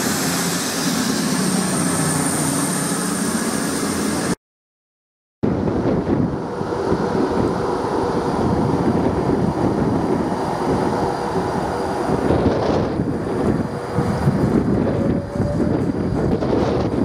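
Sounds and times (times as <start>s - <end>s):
train wheels rumbling on rail: 5.5s - 17.0s.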